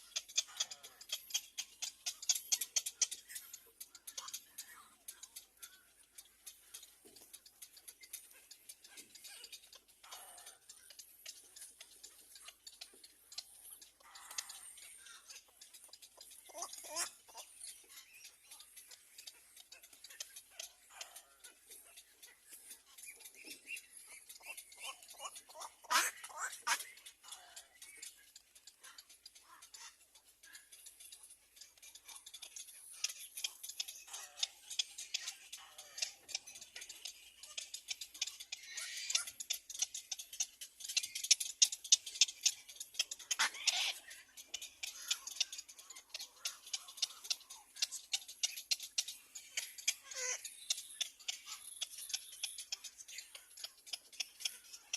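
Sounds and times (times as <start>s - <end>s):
birds clicking in nest: 24.4s - 54.8s.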